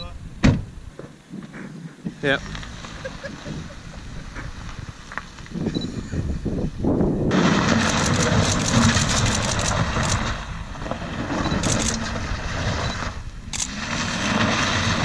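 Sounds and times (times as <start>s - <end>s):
car engine revving: 2.3s - 5.1s, 7.3s - 15.0s.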